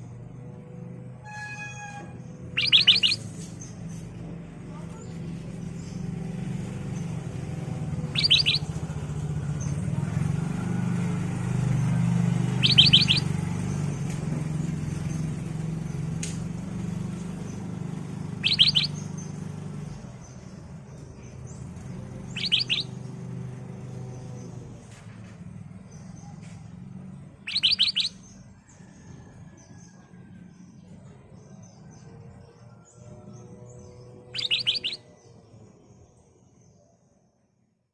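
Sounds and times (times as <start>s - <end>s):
bird calling high notes: 1.2s - 3.3s, 8.1s - 8.8s, 12.6s - 13.3s, 18.4s - 19.0s, 22.3s - 22.9s, 27.4s - 28.2s, 34.3s - 35.0s
soft bird chirps: 2.1s - 4.1s, 8.0s - 8.8s, 12.5s - 14.0s, 18.4s - 23.0s, 27.4s - 29.0s, 33.2s - 35.4s.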